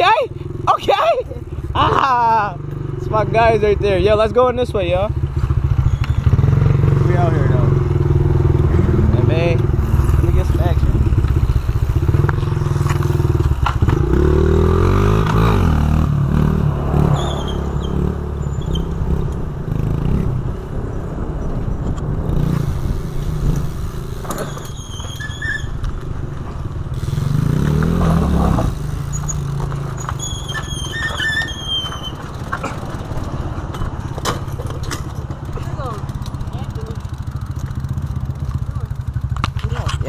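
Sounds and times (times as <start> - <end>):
dirt bike engine revving: 1.7 - 20.7, 22.1 - 25.8, 26.8 - 34.0.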